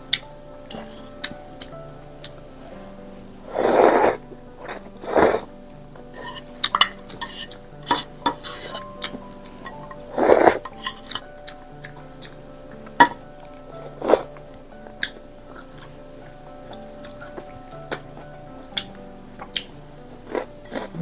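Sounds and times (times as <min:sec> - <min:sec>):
cutlery clinking on dishes: 0:00.7 - 0:01.7, 0:06.1 - 0:14.4.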